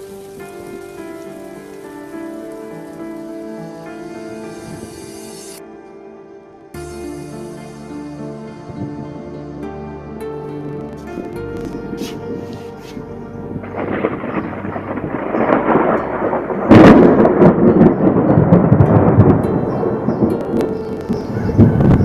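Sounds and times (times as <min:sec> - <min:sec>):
thunder rumbling: 0:00.0 - 0:05.4, 0:11.0 - 0:22.0
thunder crack: 0:13.5 - 0:22.0.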